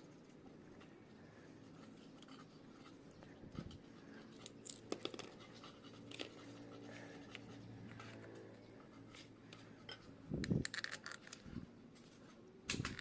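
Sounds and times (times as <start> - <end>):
small metal parts clicking: 9.5 - 11.6.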